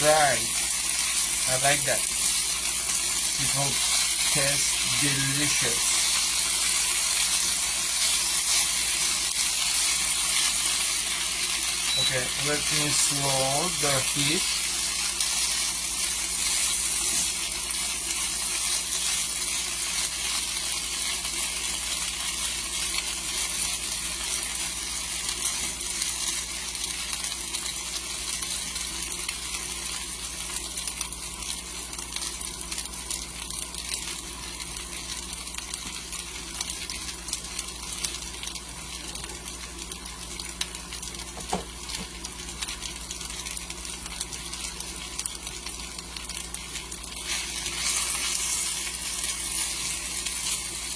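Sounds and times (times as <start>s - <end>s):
potatoes sizzling in oil: 0.0s - 50.9s.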